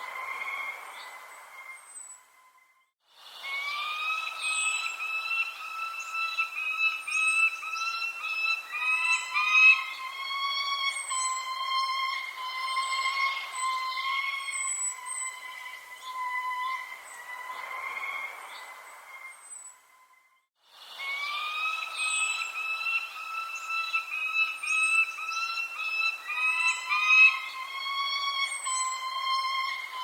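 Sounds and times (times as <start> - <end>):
birds chirping: 0.0 - 20.2, 20.9 - 30.0
steady whistling tone: 3.4 - 18.0, 20.9 - 30.0.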